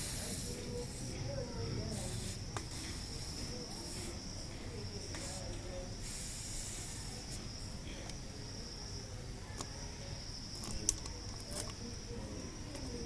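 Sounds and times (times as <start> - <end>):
heating element hissing: 0.0 - 1.2, 1.9 - 4.2, 6.0 - 7.4.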